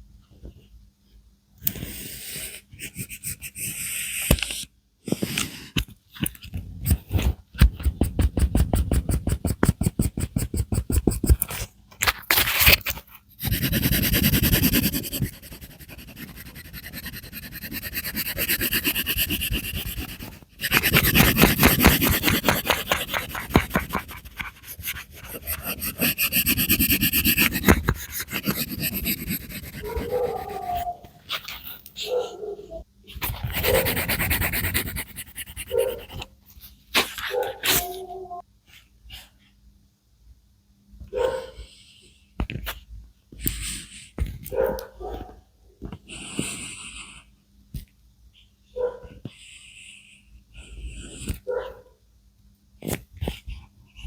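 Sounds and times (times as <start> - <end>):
colouring strokes on paper: 7.6 - 11.4, 13.4 - 30.9, 33.5 - 36.2.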